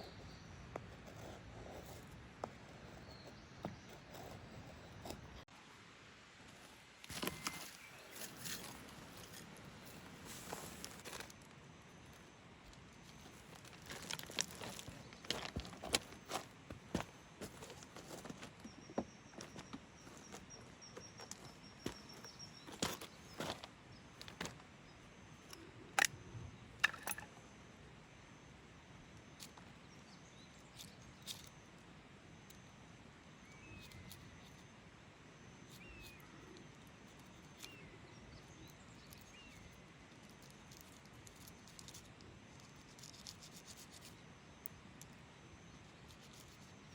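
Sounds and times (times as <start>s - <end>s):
faint rustles and clicks: 6.4s - 24.6s, 35.7s - 46.9s.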